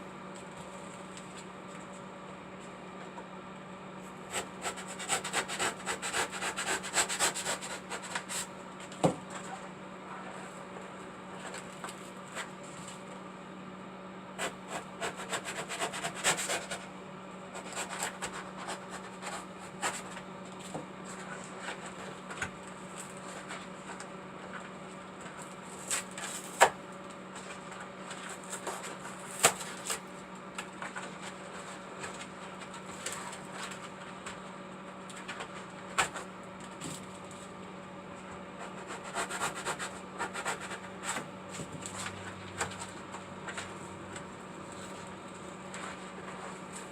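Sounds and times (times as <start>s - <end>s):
steady low hum: 0.0s - 46.9s
rubbing and scraping: 17.6s - 20.2s, 38.6s - 43.8s.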